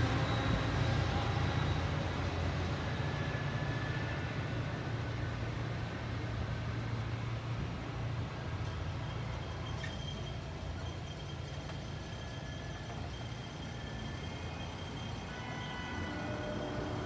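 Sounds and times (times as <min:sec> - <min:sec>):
diesel train rumbling: 0:00.0 - 0:17.0.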